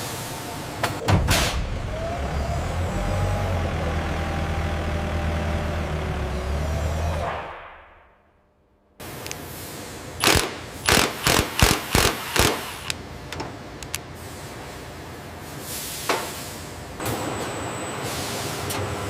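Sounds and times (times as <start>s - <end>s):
factory machinery running: 0.0s - 7.8s, 9.0s - 19.0s
sharp mechanical clanks: 10.2s - 14.0s
light mechanical clicks: 12.4s - 14.1s.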